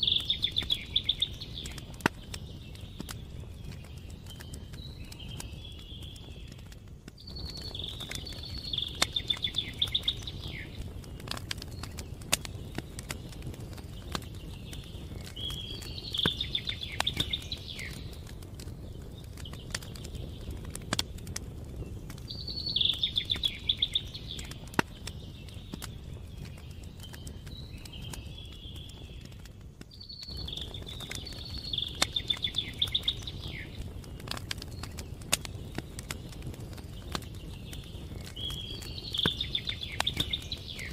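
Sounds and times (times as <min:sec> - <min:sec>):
songbird trilling: 0:00.0 - 0:01.8, 0:07.4 - 0:10.8
campfire crackling and popping: 0:00.0 - 0:40.9.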